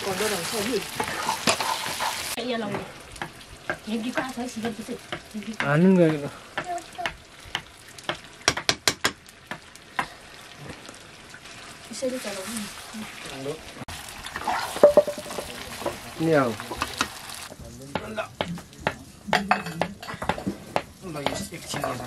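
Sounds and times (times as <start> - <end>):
curry frying in a pan: 0.0 - 22.0
sharp knocks: 7.6 - 10.1.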